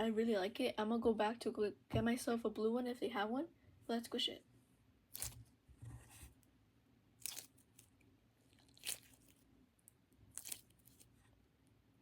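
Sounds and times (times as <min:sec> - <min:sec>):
foam toy squished by hand: 0:08.6 - 0:09.4, 0:10.3 - 0:11.1.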